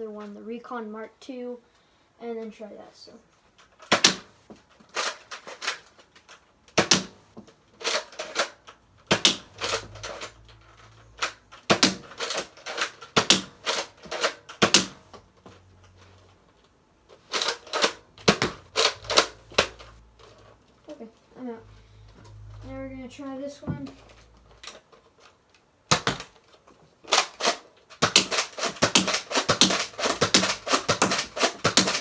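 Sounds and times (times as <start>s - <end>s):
toy dart blaster priming and firing: 3.8s - 4.3s, 6.8s - 7.2s, 7.8s - 10.4s, 11.2s - 15.1s, 17.3s - 19.9s, 25.9s - 26.4s, 27.1s - 32.0s.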